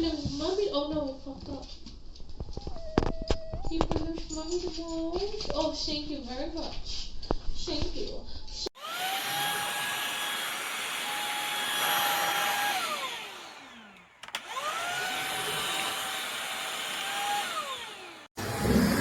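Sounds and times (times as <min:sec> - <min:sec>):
vacuum cleaner motor whine: 0:08.8 - 0:19.0.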